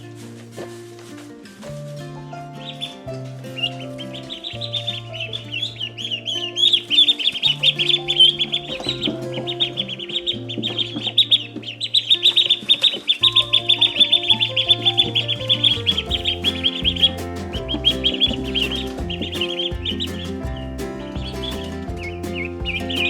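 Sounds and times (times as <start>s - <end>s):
baby chicks peeping: 3.6s - 23.0s
background music with bass: 7.5s - 12.4s, 13.2s - 23.0s.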